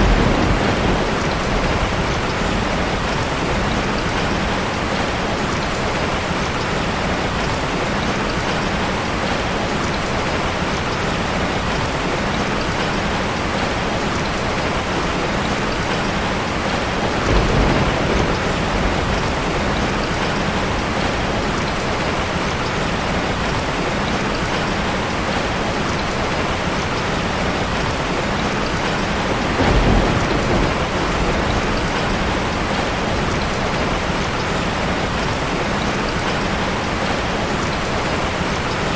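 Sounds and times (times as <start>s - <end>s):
low rumbles of thunder: 0.0s - 6.2s, 16.7s - 24.6s, 27.4s - 36.3s
heavy rain falling: 0.0s - 38.9s.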